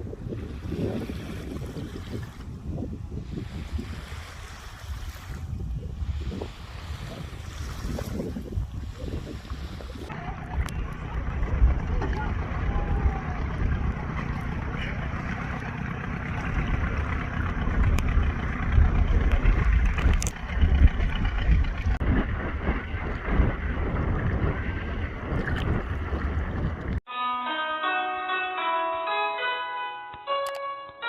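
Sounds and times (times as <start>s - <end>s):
wind buffeting microphone: 0.0s - 27.0s
surf washing on shore: 0.4s - 27.0s
bell-like music: 27.1s - 31.0s.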